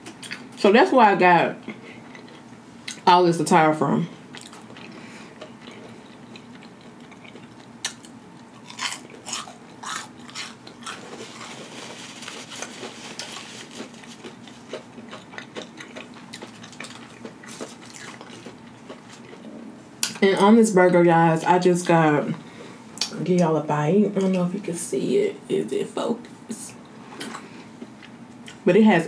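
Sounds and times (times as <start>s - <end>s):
crunchy chewing: 1.6s - 3.0s, 4.3s - 20.2s.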